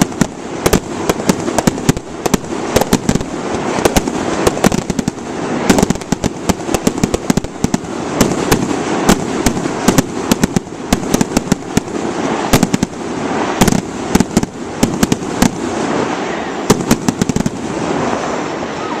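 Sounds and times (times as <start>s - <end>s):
fireworks cracking and banging: 0.0s - 18.2s
continuous rumble: 0.0s - 19.0s.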